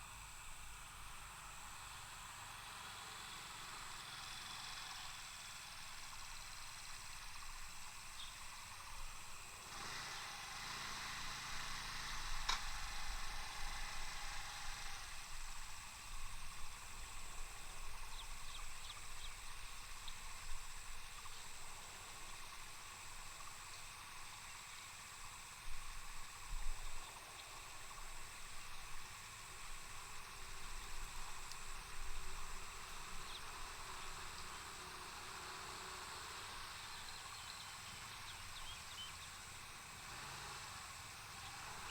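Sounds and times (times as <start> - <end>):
soft hiss: 0.0 - 41.9
faint chirps: 32.3 - 39.8.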